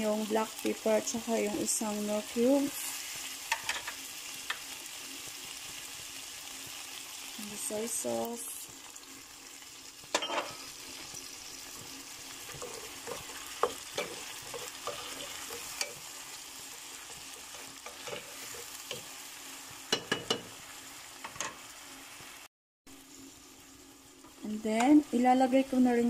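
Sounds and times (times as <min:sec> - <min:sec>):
food sizzling in a frying pan: 0:00.0 - 0:26.0
utensil knocking and scraping pan: 0:12.4 - 0:16.0, 0:17.0 - 0:19.1.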